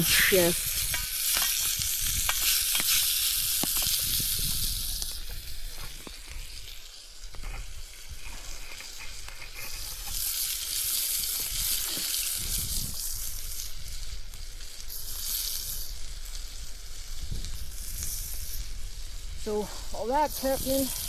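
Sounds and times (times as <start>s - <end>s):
meat sizzling in hot oil: 0.0s - 21.0s.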